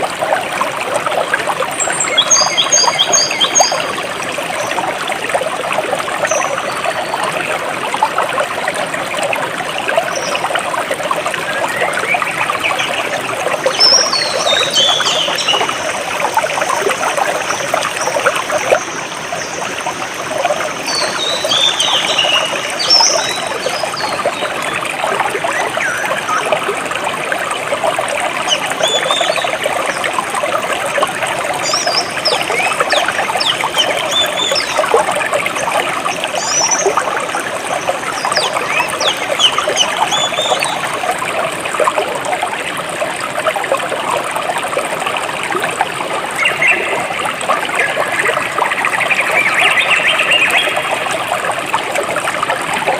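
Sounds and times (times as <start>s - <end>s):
stream flowing over rocks: 0.0s - 52.9s
birds chirping: 11.5s - 16.2s, 20.8s - 24.6s, 31.6s - 35.7s, 37.7s - 40.8s.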